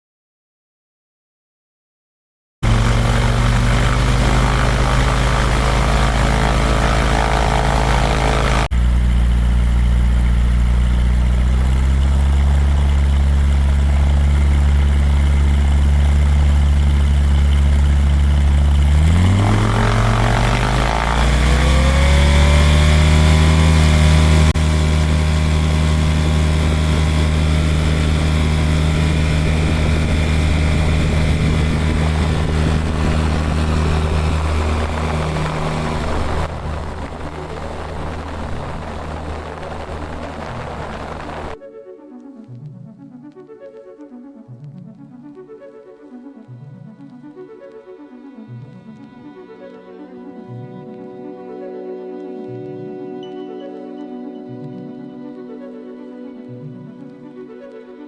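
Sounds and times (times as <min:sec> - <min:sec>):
light aircraft engine and propeller: 0:02.6 - 0:41.6.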